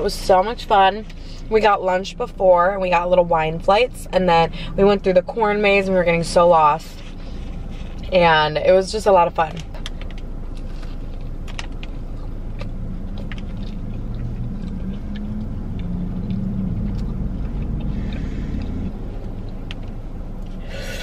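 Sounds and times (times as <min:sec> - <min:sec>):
low rumble in car cabin: 0:00.0 - 0:21.0
faint chewing clicks: 0:09.6 - 0:20.6
breath blown out: 0:20.6 - 0:21.0.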